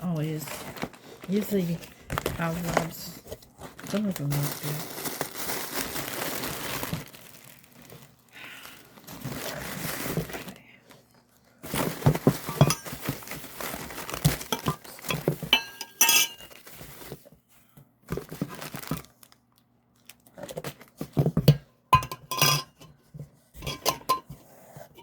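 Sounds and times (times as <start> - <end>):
packaging crinkling and rustling: 0.0 - 21.5
hard items clinking: 11.6 - 17.2, 20.5 - 23.0, 23.6 - 25.0.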